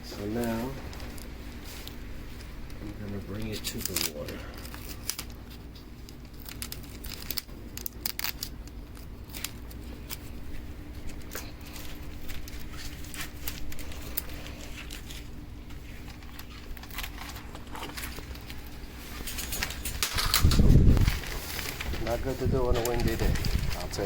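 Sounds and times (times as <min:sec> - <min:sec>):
plastic film crinkling: 0:00.1 - 0:24.0
wind rumbling on microphone: 0:19.8 - 0:24.0.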